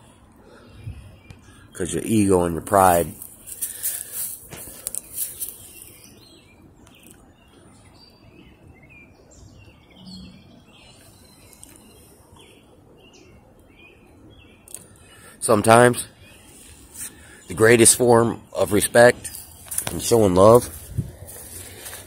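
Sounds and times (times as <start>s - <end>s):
quiet outdoor background noise: 0.0s - 22.0s
small songbirds chirping: 0.0s - 22.0s
rustle of movement: 2.8s - 6.2s, 19.2s - 22.0s.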